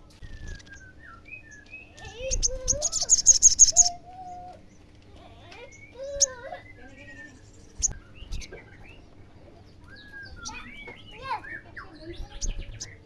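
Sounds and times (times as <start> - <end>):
gliding whistled bird notes: 0.0 - 4.4, 9.8 - 13.0
bird chattering high-pitched: 0.2 - 13.0.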